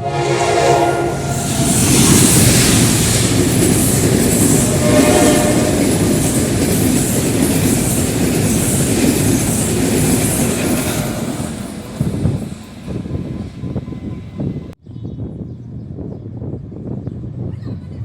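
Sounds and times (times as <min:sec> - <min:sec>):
train wheels clattering on rails: 0:01.2 - 0:14.7.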